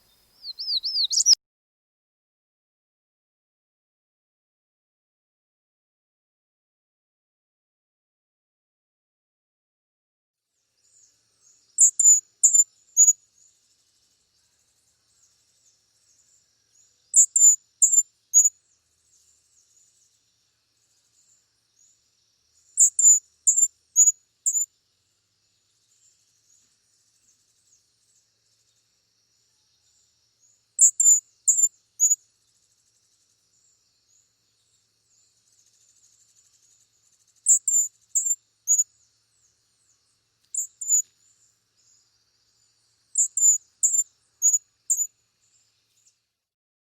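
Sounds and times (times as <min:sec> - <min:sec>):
songbird singing high thin notes: 0:00.0 - 0:01.4, 0:11.8 - 0:13.2, 0:22.8 - 0:24.7, 0:37.4 - 0:38.8, 0:40.5 - 0:41.0.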